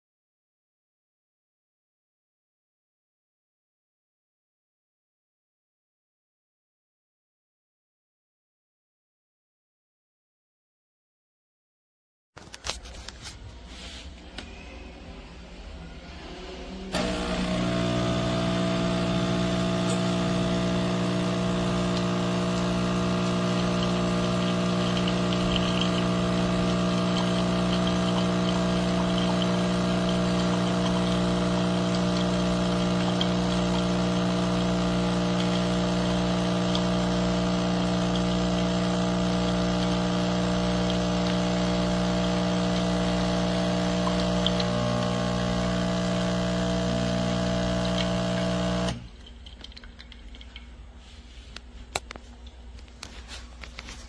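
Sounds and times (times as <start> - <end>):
espresso machine pump buzzing: 16.9 - 49.2.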